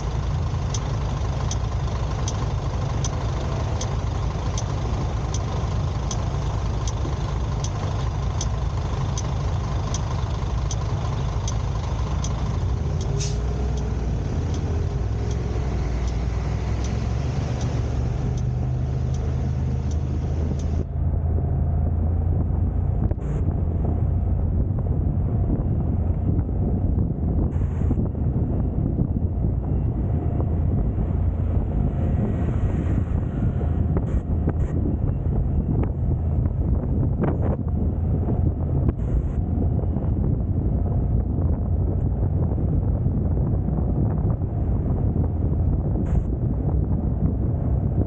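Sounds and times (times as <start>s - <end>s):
sharp ticking: 0.0s - 20.9s
car engine and road noise: 0.0s - 48.0s.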